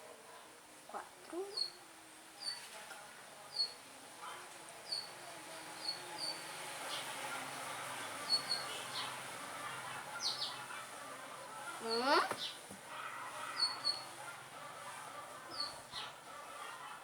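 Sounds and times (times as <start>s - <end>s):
faint distant voices: 0.0s - 17.0s
small bird chirping: 1.3s - 1.8s, 2.4s - 2.7s, 3.5s - 3.8s, 4.8s - 5.2s.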